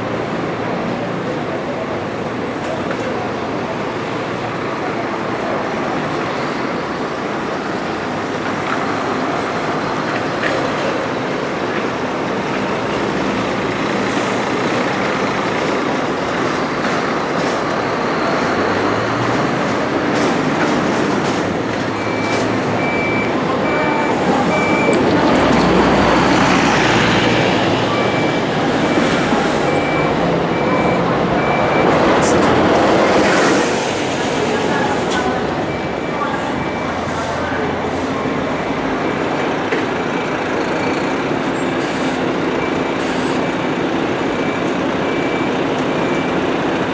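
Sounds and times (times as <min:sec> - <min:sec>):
reversing beeper: 0:21.8 - 0:32.0, 0:34.7 - 0:37.5.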